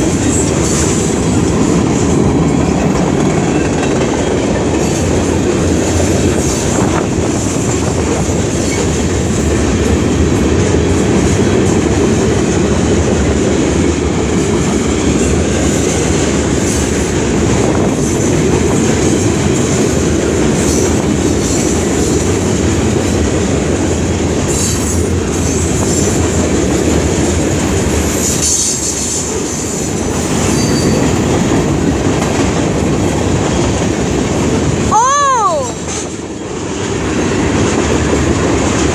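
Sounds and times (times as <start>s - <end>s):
freight train wheels rumbling: 0.0s - 38.9s
high wheel squeals: 28.2s - 31.3s.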